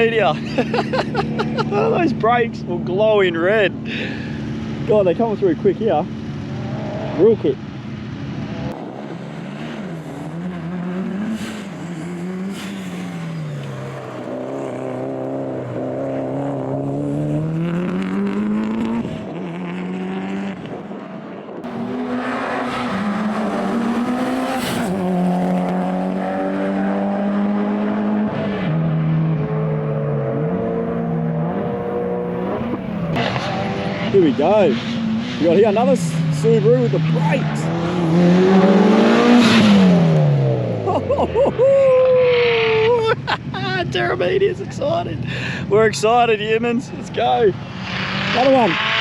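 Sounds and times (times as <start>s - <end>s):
rally car engines revving: 0.0s - 49.0s
tyre squeal: 11.3s - 14.0s.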